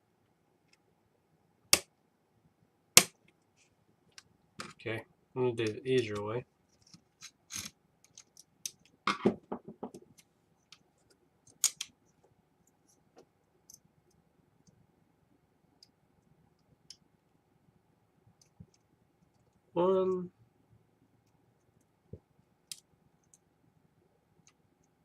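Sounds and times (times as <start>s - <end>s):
clicks and scrapes of small parts: 6.1s - 9.0s, 10.1s - 13.0s.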